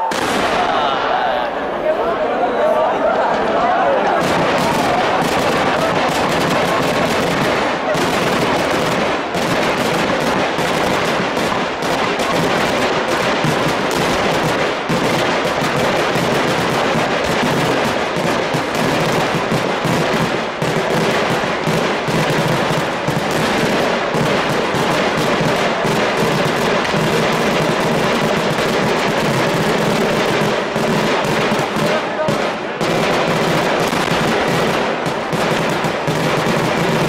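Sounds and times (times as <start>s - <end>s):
fireworks crackling bangs: 0.0s - 1.2s, 4.0s - 37.0s.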